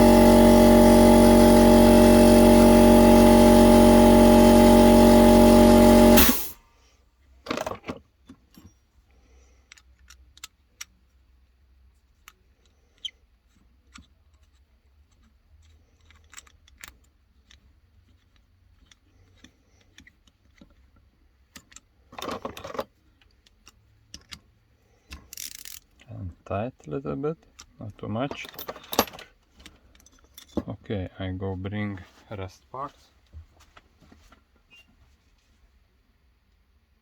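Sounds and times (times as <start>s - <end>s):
short loud noise bursts: 0.0s - 6.6s
small metal parts clinking: 25.1s - 26.0s.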